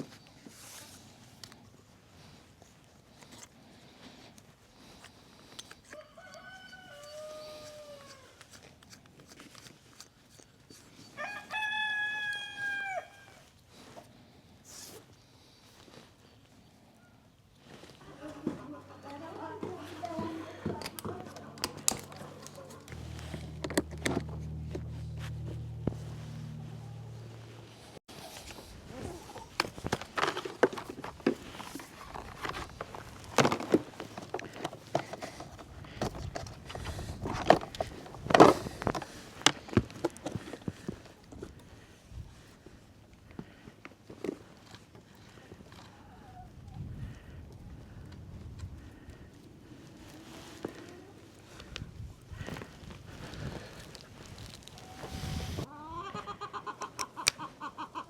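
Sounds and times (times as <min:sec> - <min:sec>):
rooster crowing: 0:05.9 - 0:08.3, 0:11.2 - 0:13.4.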